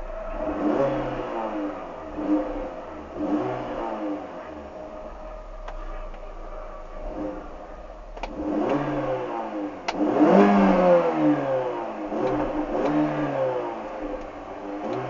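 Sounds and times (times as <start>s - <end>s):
car engine revving: 0.0s - 15.0s
sharp clicks: 13.9s - 15.0s.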